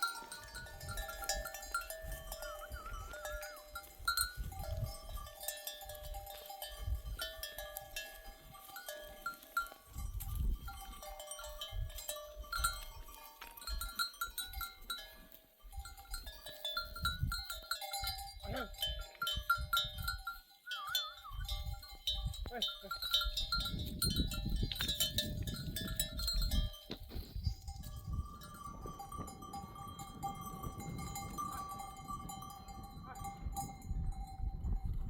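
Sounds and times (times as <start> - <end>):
sheep and goats bleating: 0.0 - 6.5
herd bells clinking: 0.0 - 35.0.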